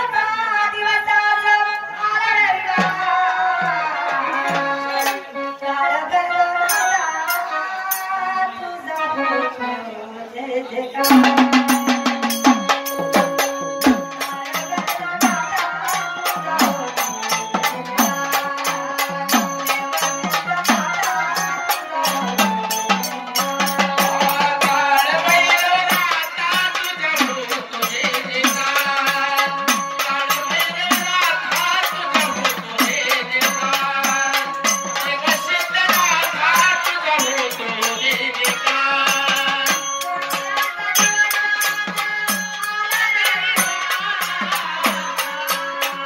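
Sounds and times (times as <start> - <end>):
woman singing devotional song: 0.0 - 46.0
jingling percussion: 2.8 - 5.6, 6.6 - 9.2, 11.0 - 46.0
hand drum beating: 11.0 - 46.0.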